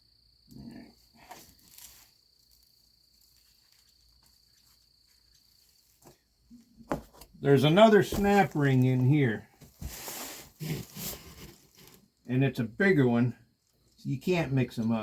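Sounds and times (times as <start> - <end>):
faint handling sounds: 1.1 - 12.3.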